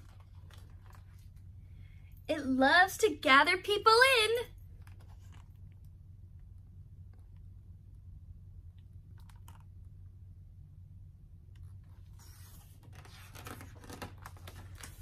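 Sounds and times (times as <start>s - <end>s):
low room hum: 0.0s - 15.0s
paper page turning: 12.0s - 15.0s.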